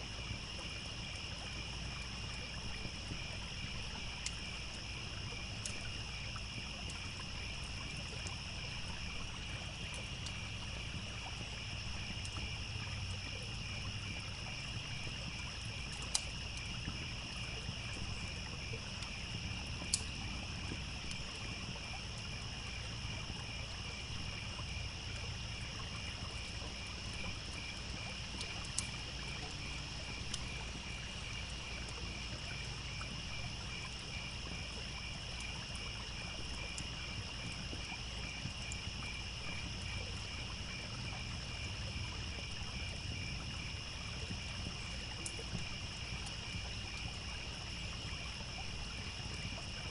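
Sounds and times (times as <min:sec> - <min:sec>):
crickets chirping: 0:00.0 - 0:49.9
campfire crackling pops: 0:05.5 - 0:08.8, 0:12.0 - 0:13.2, 0:14.9 - 0:18.4, 0:19.0 - 0:21.7, 0:28.4 - 0:29.4, 0:30.1 - 0:30.6.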